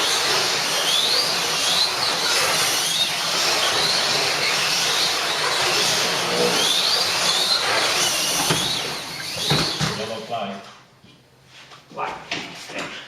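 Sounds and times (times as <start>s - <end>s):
slot car motors whining: 0.0s - 10.3s.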